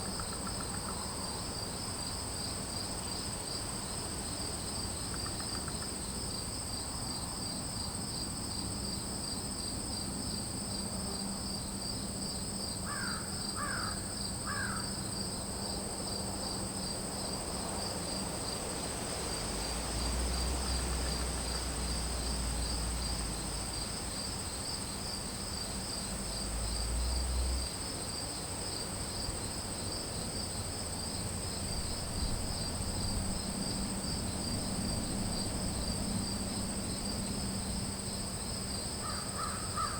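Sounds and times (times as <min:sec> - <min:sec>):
insects chorus: 0:00.0 - 0:39.9
insect pulsing trill: 0:31.5 - 0:39.9.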